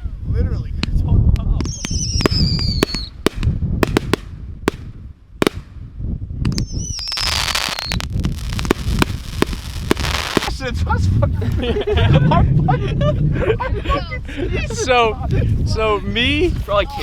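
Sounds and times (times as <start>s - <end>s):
firework whistles falling in pitch: 1.7s - 3.2s, 6.5s - 8.1s
fireworks cracking and banging: 1.8s - 5.7s, 7.0s - 10.6s
hissing crackle: 6.9s - 10.6s.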